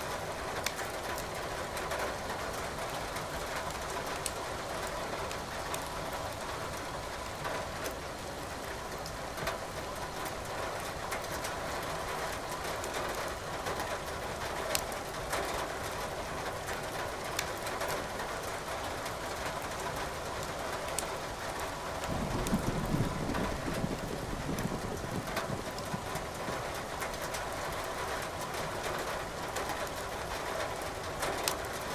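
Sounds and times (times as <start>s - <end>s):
rain patter: 0.0s - 31.9s
firewood crackling and popping: 0.6s - 1.4s, 14.7s - 15.0s, 16.7s - 17.7s
low thunder rumble: 22.0s - 26.1s.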